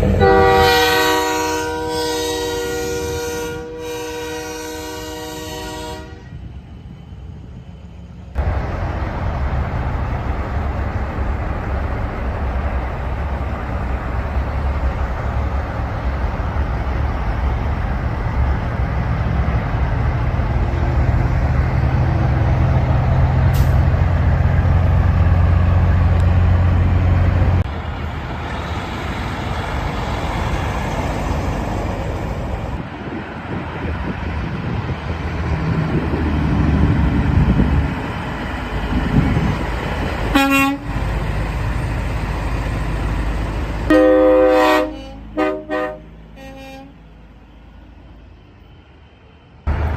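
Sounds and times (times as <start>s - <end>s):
truck engine droning: 0.0s - 49.9s
hissy vehicle sound: 23.4s - 24.1s.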